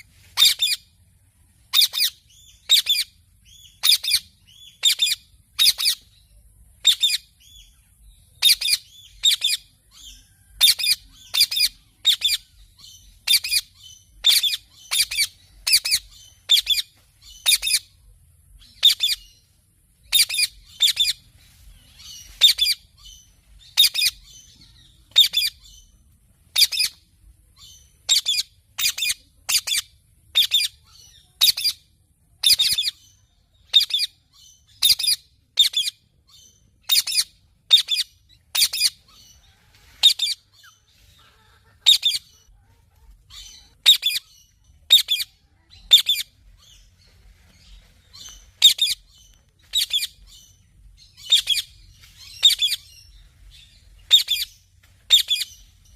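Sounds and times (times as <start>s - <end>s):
parrot calling: 13.2s - 17.9s, 41.2s - 42.5s, 43.3s - 46.3s, 51.1s - 52.9s.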